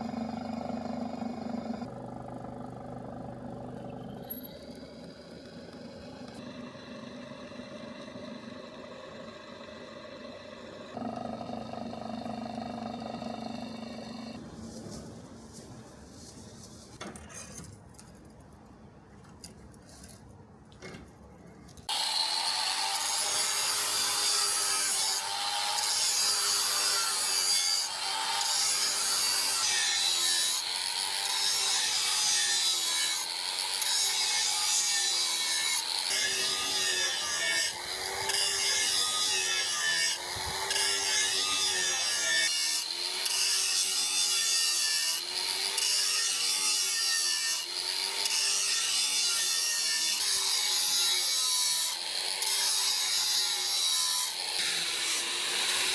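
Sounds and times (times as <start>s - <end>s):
hand tool sawing or filing: 21.9s - 55.9s.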